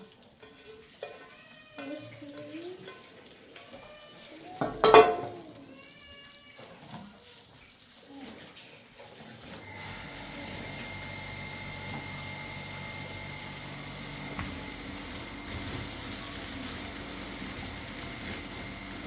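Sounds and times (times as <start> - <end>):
motor humming with whine: 9.6 - 19.0.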